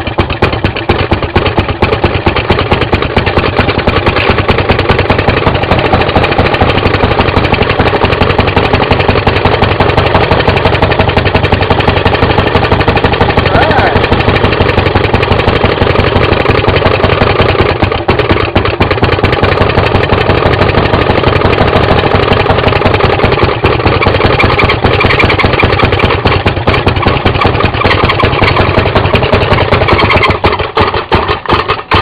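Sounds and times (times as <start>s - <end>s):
two-stroke engine running fast: 0.0s - 32.0s.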